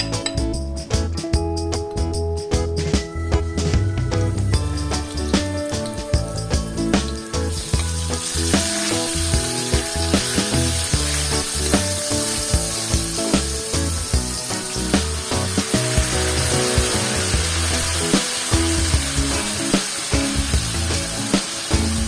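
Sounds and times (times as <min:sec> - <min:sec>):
background music with a beat: 0:00.0 - 0:22.0
food sizzling in hot oil: 0:04.6 - 0:22.0.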